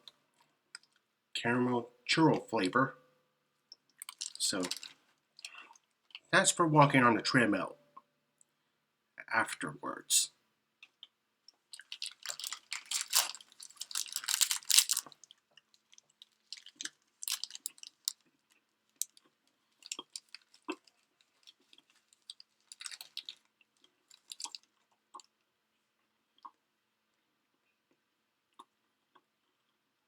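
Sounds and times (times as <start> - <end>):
person chewing a protein bar: 3.8 - 6.3, 10.8 - 26.6
wrapper crackling: 4.0 - 6.2, 11.7 - 18.2, 19.0 - 23.5, 24.1 - 24.7.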